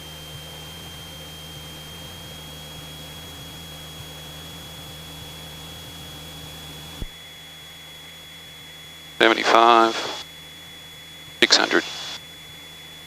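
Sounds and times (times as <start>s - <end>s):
aircraft cabin engine drone: 0.0s - 13.0s
thin high whine: 8.0s - 13.0s.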